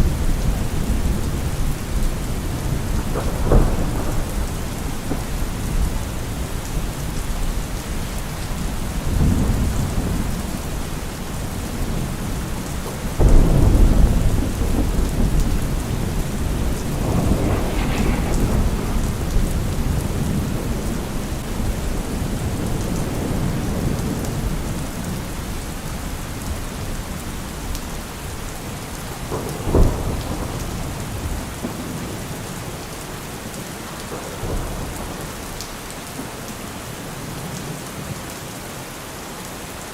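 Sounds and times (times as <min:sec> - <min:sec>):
heavy rain falling: 0:00.0 - 0:39.9
deep low rumbles: 0:16.0 - 0:20.4.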